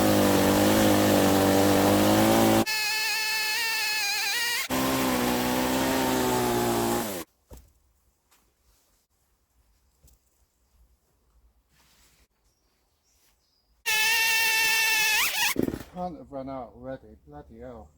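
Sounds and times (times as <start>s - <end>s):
chainsaw running hard: 0.0s - 7.2s.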